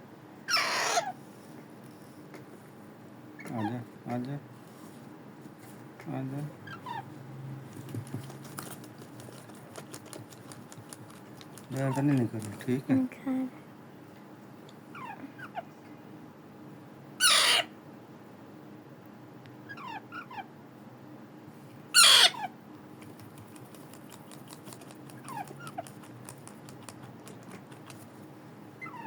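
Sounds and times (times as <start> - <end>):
parakeet chicks begging screeches: 0.5 - 1.2, 17.2 - 17.7, 22.0 - 22.5
faint rapid clicks: 7.9 - 12.8, 23.0 - 28.1.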